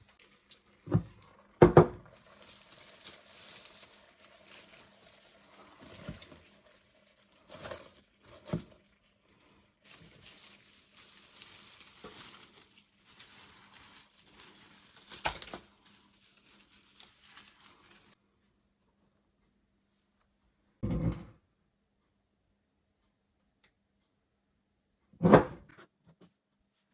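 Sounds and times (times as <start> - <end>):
crackling hiss of cooking: 0.0 - 18.2.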